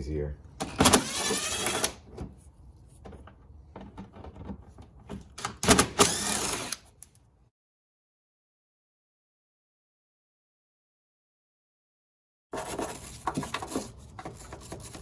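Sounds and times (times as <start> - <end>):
cordless drill spinning bolts: 0.6 - 2.0, 5.4 - 7.0.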